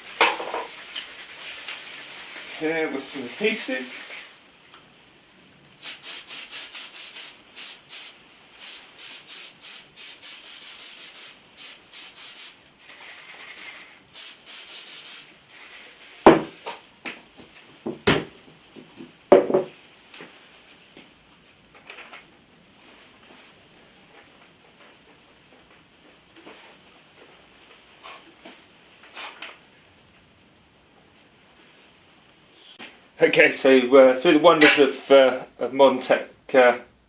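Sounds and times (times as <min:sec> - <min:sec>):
aerosol spray hissing: 0:05.8 - 0:16.0.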